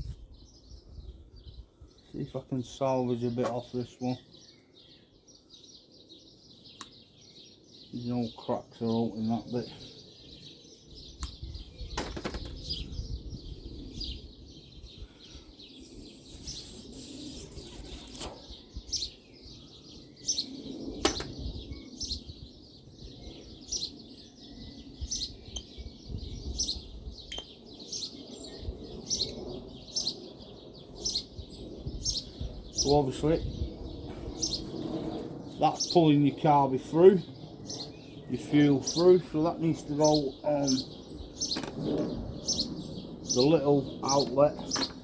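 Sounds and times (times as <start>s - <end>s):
small bird chirping: 9.4s - 36.0s, 37.2s - 45.0s
sharp clicks and knocks: 21.0s - 21.4s, 41.5s - 42.1s.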